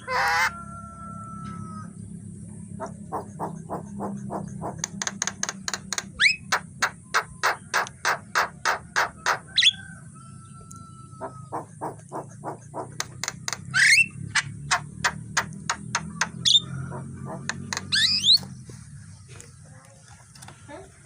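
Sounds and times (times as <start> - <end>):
bird harsh chattering: 2.8 - 9.8, 11.2 - 18.5
bird whistles: 17.9 - 18.5.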